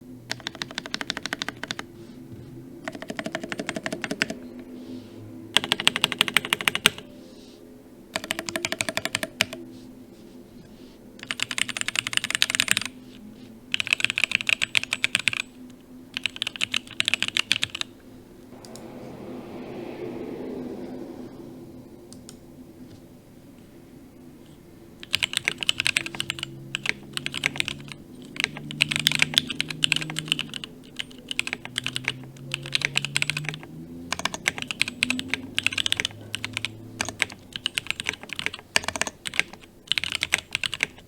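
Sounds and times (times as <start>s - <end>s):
rapid mechanical keyboard typing: 0.3s - 1.9s, 2.8s - 4.5s, 5.5s - 7.1s, 8.1s - 9.6s, 11.2s - 13.0s, 13.7s - 17.9s, 25.0s - 41.0s
soft hiss: 7.0s - 8.1s, 9.6s - 11.2s, 17.9s - 25.1s.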